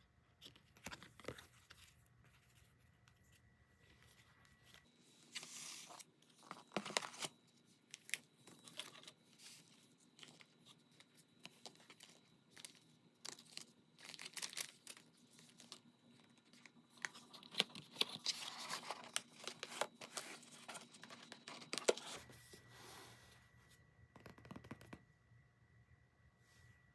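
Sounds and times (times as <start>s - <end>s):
packaging crinkling and rustling: 4.0s - 22.3s.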